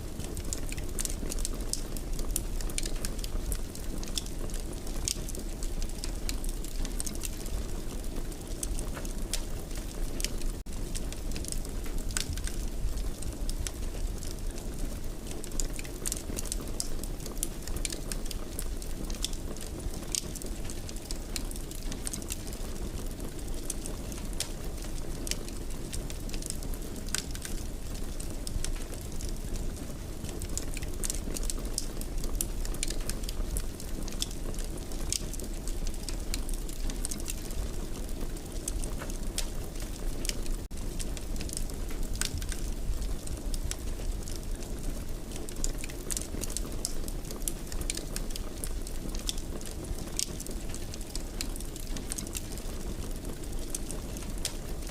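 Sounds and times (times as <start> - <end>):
fire crackles and pops: 0.0 - 54.9.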